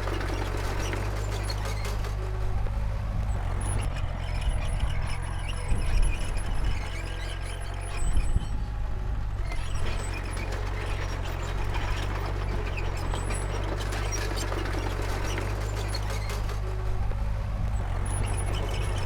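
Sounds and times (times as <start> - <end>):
rattling and clanking: 0.0 - 2.4, 9.5 - 16.8
bulldozer diesel engine running: 0.0 - 19.0.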